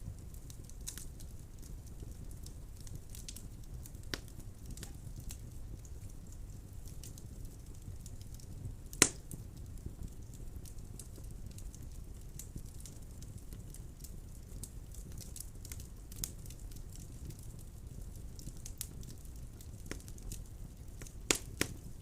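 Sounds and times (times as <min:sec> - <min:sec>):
fire crackles: 0:00.0 - 0:22.0
fire rumbling in fireplace: 0:00.0 - 0:22.0
loud sharp pop of fire: 0:08.9 - 0:09.4, 0:21.3 - 0:21.8.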